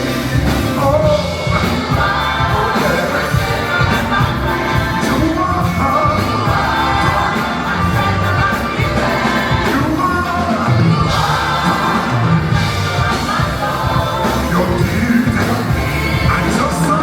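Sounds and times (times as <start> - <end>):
band playing with drum beat: 0.0 - 17.0
people singing: 0.0 - 17.0.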